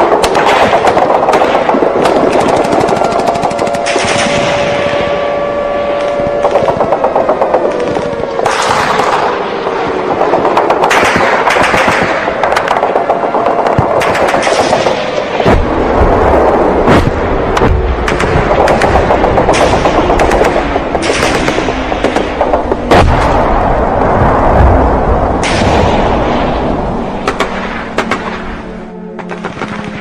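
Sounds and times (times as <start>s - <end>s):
rapid gunfire: 0.0s - 5.5s, 6.3s - 15.8s, 16.8s - 23.6s, 27.2s - 28.5s
dense noisy din: 0.0s - 30.0s
loud blast: 0.0s - 30.0s.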